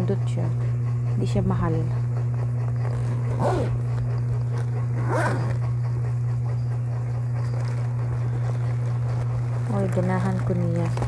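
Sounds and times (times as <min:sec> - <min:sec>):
steady low hum: 0:00.0 - 0:11.0
zipper being pulled: 0:02.6 - 0:05.7, 0:07.4 - 0:11.0.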